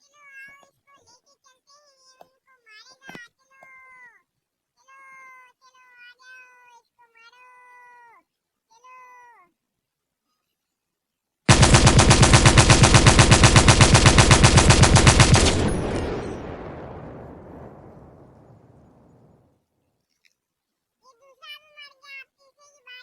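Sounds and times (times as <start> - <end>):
electronic machine-gun rattle: 11.5 - 16.4.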